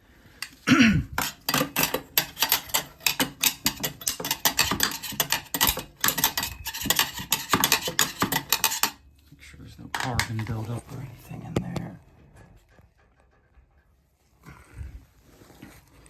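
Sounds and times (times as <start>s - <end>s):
hand tools clicking on metal: 0.4s - 9.0s.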